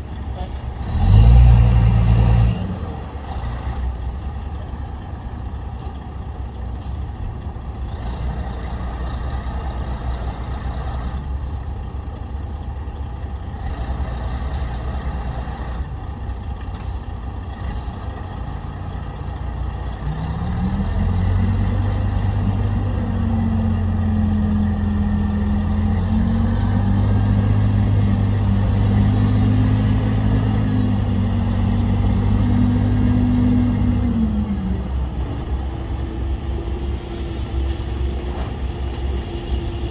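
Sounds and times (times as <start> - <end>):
heavy diesel engine revving: 0.0 - 4.8, 16.8 - 39.9.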